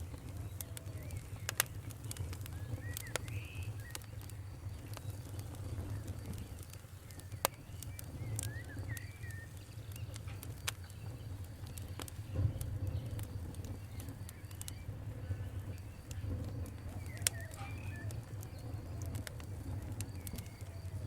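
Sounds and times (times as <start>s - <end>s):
bird chirping: 0.0s - 20.9s
campfire crackling and popping: 0.0s - 21.0s.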